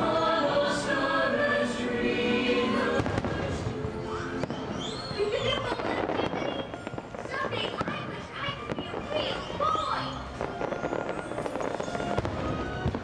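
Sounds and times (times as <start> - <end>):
voices: 0.0 - 10.3
fireworks show music: 0.0 - 13.0
fireworks shells bursting: 10.2 - 13.0.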